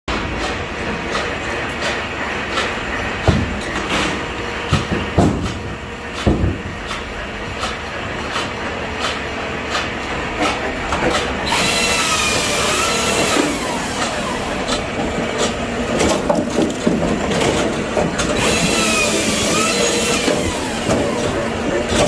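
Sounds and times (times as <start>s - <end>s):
motor whine: 11.4s - 14.7s, 18.4s - 21.5s
rushing clattering noise: 12.9s - 22.0s.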